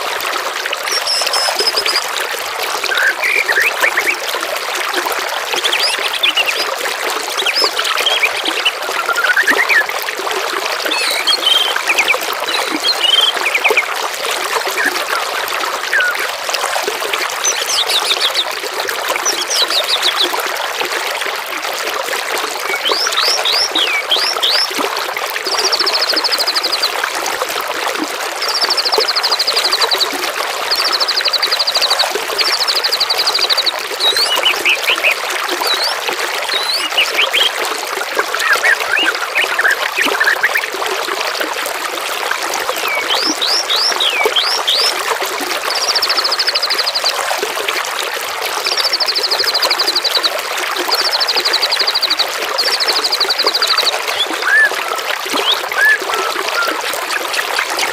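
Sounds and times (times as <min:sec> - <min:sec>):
water trickling and babbling: 0:00.0 - 0:57.9
songbirds singing: 0:00.9 - 0:02.0, 0:05.6 - 0:06.7, 0:07.3 - 0:09.9, 0:10.8 - 0:13.9, 0:17.4 - 0:20.3, 0:22.6 - 0:24.8, 0:28.4 - 0:40.7, 0:42.8 - 0:45.0, 0:51.0 - 0:56.8.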